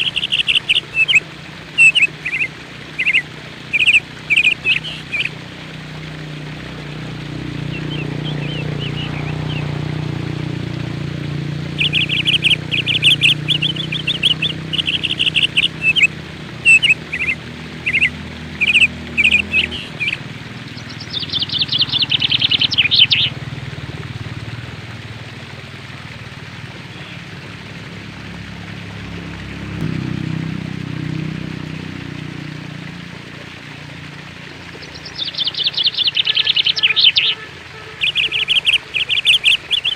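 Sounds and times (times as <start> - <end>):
small birds chirping in trills: 0.0 - 5.4, 7.6 - 9.9, 11.7 - 23.4, 34.5 - 39.9.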